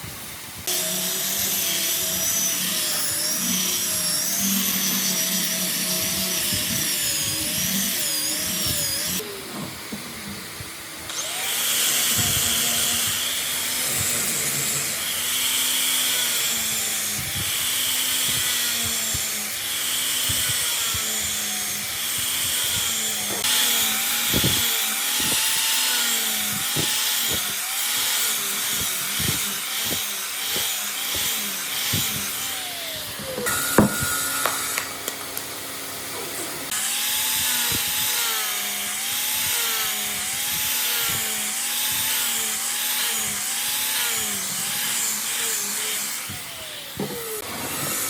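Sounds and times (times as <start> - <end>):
power tool strokes on wood: 11.1 - 48.0.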